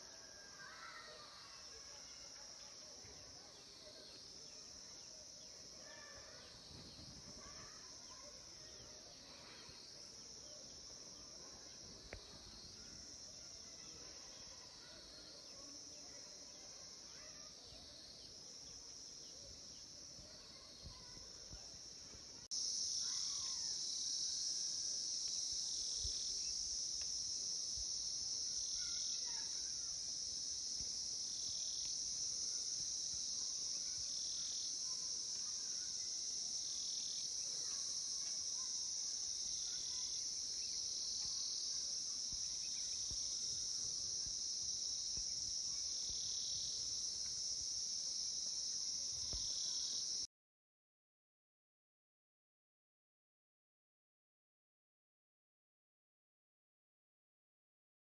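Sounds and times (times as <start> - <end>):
insects buzzing: 0.0 - 50.3.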